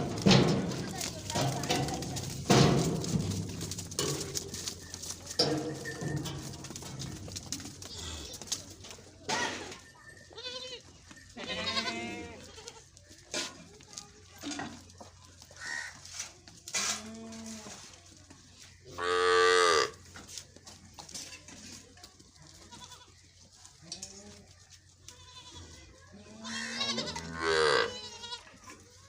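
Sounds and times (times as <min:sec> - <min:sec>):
goats bleating: 0:10.4 - 0:12.9, 0:22.4 - 0:23.2, 0:25.1 - 0:28.6.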